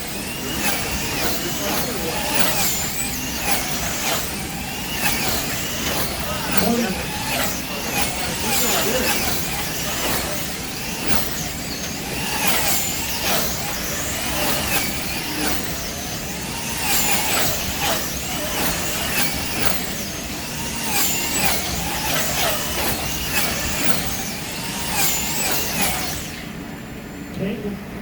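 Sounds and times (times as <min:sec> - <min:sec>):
slot car motors whining: 0:00.0 - 0:28.0.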